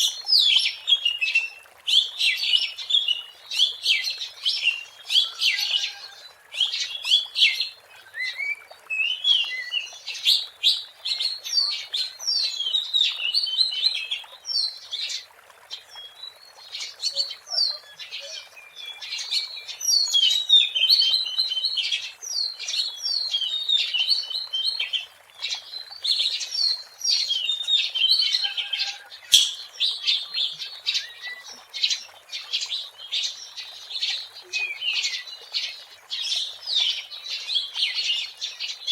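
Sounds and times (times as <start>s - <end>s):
bird singing: 26.6s - 31.6s.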